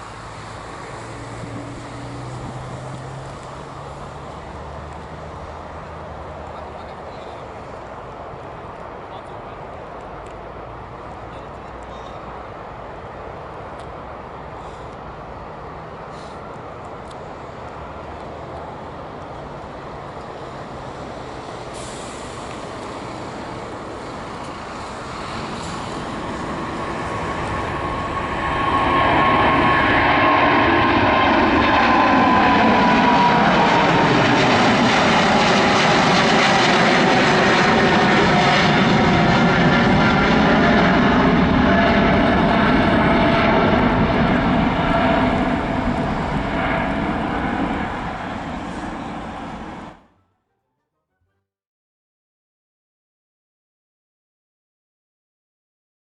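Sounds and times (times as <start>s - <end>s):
jet engine whine sliding down: 0.0s - 9.0s, 13.2s - 50.1s
jet engines passing: 0.0s - 50.1s.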